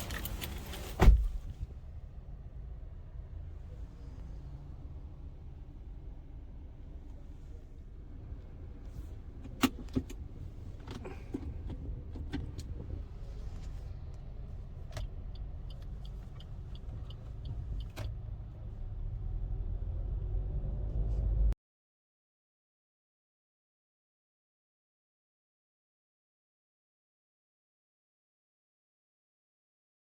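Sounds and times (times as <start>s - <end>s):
car engine rumbling: 0.0s - 21.6s.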